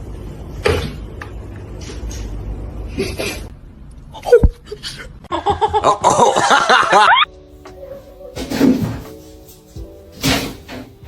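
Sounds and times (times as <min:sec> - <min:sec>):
loud excited laughter: 0:04.2 - 0:07.3.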